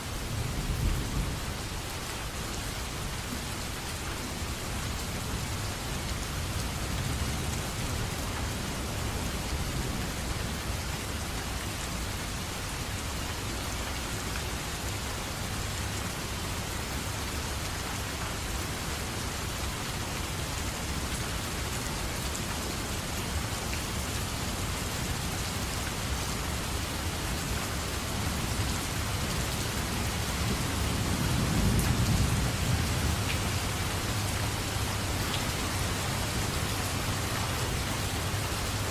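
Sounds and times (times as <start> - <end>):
steady rain falling: 0.0 - 38.9
low rumble of thunder: 0.2 - 1.6, 30.4 - 35.1.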